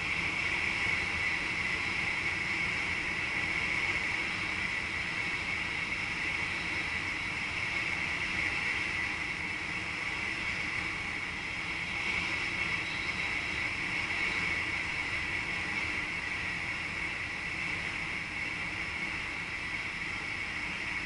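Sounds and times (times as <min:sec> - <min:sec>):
train running hiss: 0:00.0 - 0:21.0.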